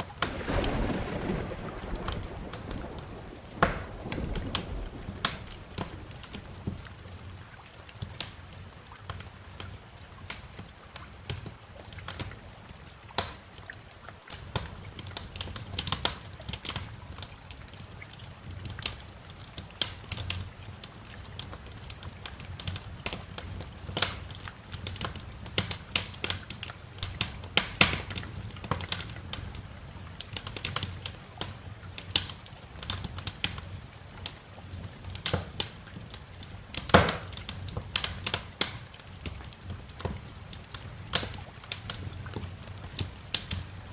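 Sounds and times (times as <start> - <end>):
sharp fire pops: 0.0 - 8.4, 21.4 - 29.7, 35.0 - 43.9
low fire rumble: 0.0 - 43.9
wood fire crackling: 0.0 - 43.9.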